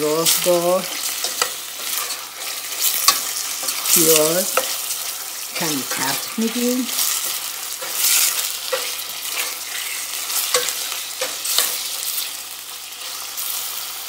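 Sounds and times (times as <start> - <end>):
meat and onion sizzling in oil: 0.0 - 14.0
metal spoon scraping a pot: 0.9 - 3.9, 7.1 - 12.0.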